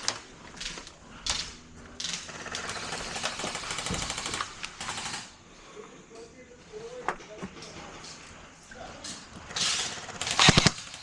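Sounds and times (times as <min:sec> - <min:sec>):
airsoft guns firing bursts: 0:02.0 - 0:05.4, 0:09.9 - 0:11.0.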